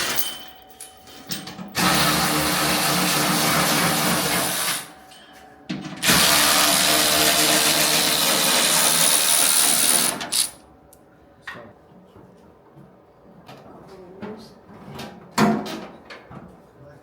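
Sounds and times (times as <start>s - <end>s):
power tool spinning: 6.0s - 10.6s.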